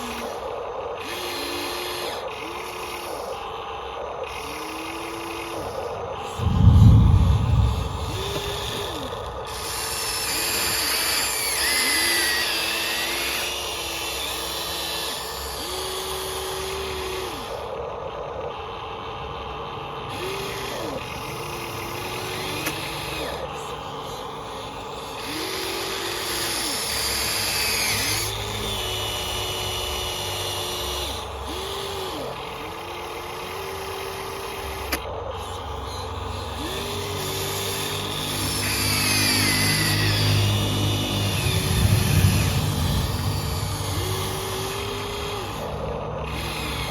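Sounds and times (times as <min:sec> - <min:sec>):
small electric motors whining: 0:00.0 - 0:06.4, 0:08.2 - 0:46.9
steady low hum: 0:06.3 - 0:10.7, 0:39.7 - 0:46.9.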